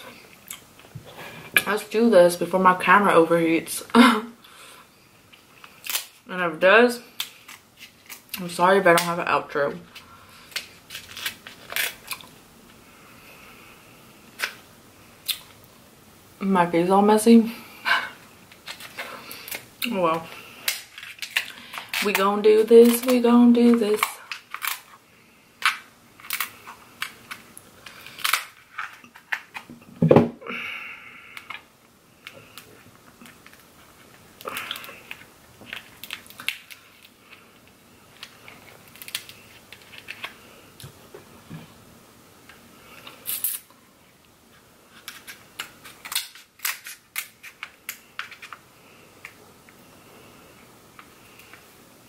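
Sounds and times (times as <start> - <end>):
crab shells cracking: 5.6 - 6.2, 7.1 - 8.3, 10.4 - 12.4, 20.4 - 22.2, 24.0 - 25.0, 25.6 - 29.7, 34.4 - 40.4, 45.0 - 48.6.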